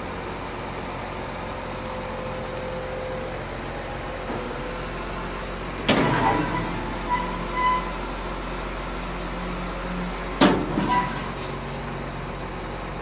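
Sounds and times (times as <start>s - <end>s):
farm machinery engine running: 0.0s - 13.0s
metallic clanks with squeaky ringing: 6.1s - 7.9s, 10.8s - 11.4s.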